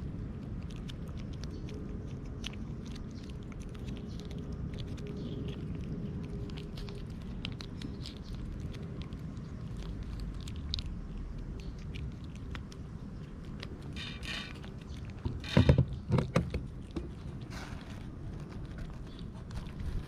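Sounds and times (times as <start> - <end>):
cats chewing and crunching: 0.0 - 20.0
low background rumble: 0.0 - 20.0.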